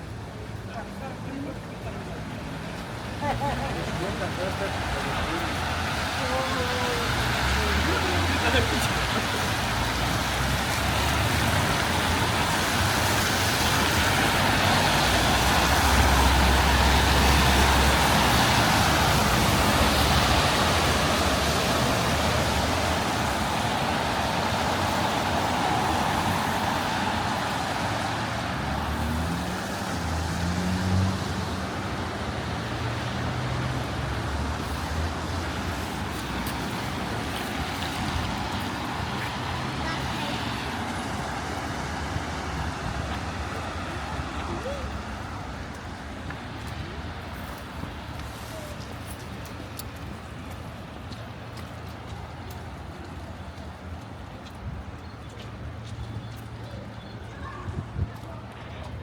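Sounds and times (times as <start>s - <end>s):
passing cars: 0.0s - 59.0s
loud vehicle passing: 3.1s - 46.1s.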